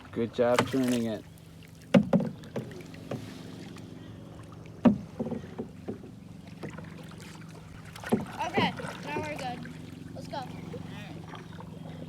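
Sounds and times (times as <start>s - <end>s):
knocks against a canoe: 0.4s - 1.2s, 1.8s - 3.4s, 4.8s - 7.0s, 7.8s - 9.4s.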